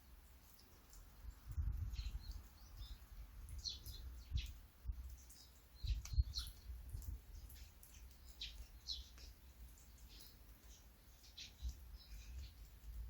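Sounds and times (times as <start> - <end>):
light rain: 0.0 - 13.0
small birds chirping: 0.0 - 13.0.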